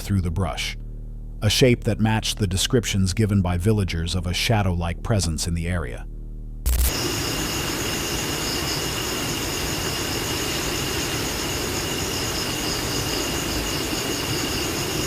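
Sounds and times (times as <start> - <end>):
night insects trilling: 6.7 - 15.0.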